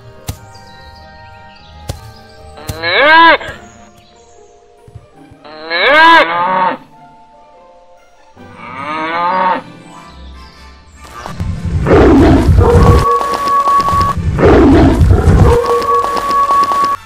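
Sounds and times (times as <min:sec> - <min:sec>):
cow mooing: 0:05.4 - 0:06.8, 0:08.6 - 0:09.6
big cat roaring and growling: 0:11.8 - 0:13.0, 0:14.4 - 0:15.5.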